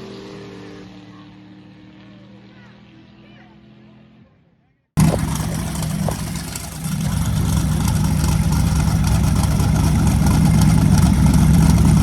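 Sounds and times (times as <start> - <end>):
car engine idling: 5.0 - 12.0.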